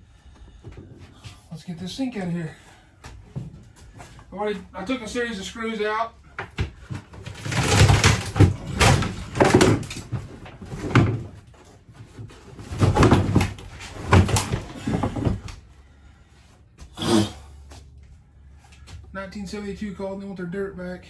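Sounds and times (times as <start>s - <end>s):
wooden cabinetry banging: 5.9s - 15.7s.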